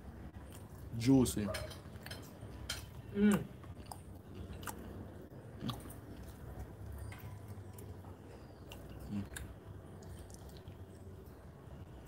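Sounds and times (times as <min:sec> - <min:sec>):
chewing chicken: 0:01.6 - 0:11.4.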